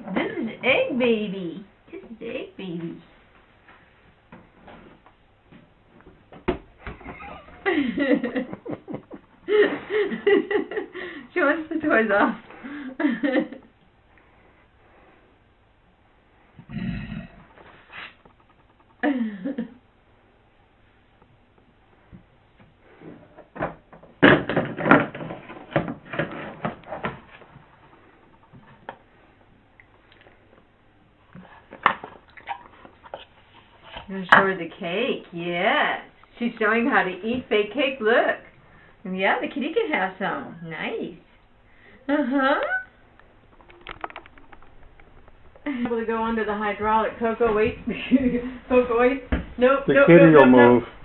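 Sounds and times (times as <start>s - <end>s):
objects knocking and clattering: 23.2s - 29.0s, 43.2s - 46.6s
person speaking: 45.6s - 51.0s.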